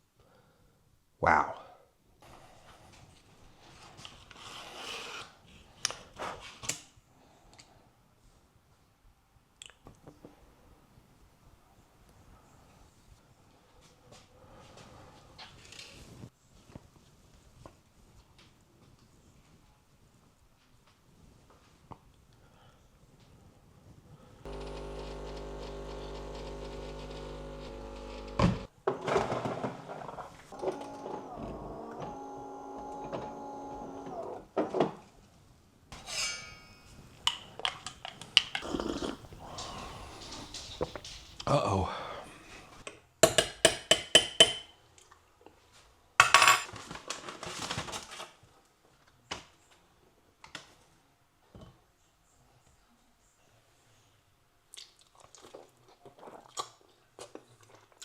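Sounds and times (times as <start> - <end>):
electric motor humming: 24.5 - 28.7, 30.6 - 34.4, 38.6 - 41.3.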